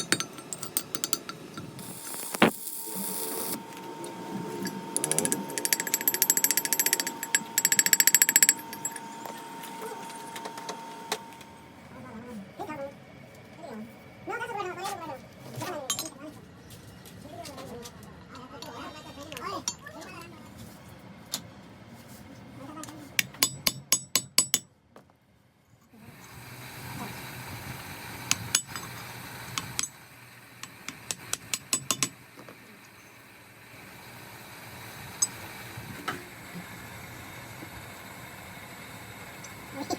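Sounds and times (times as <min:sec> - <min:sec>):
ratchet wrench clicking: 0:04.6 - 0:09.1.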